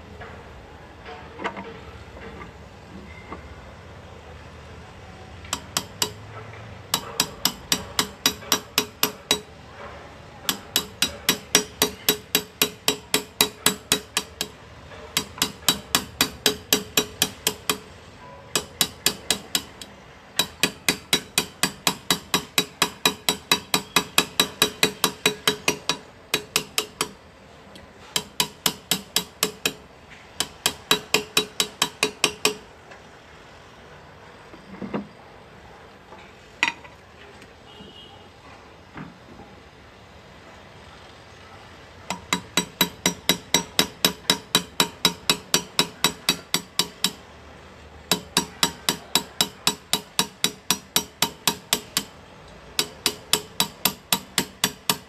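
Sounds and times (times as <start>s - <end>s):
small hammer tapping on metal: 5.5s - 6.3s, 6.9s - 9.5s, 10.5s - 14.6s, 15.2s - 17.9s, 18.5s - 27.2s, 27.8s - 32.6s, 42.1s - 47.3s, 48.1s - 52.2s, 52.8s - 55.0s.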